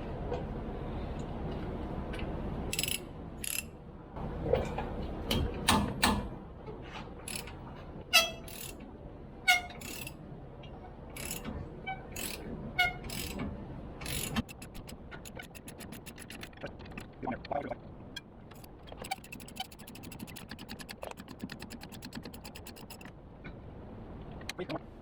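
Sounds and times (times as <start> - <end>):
socket ratchet clicking rapidly: 2.7 - 3.6, 7.3 - 7.5, 8.5 - 8.8, 9.8 - 10.1, 11.2 - 11.4, 12.2 - 12.4, 13.1 - 13.4, 14.0 - 17.0, 18.5 - 23.1.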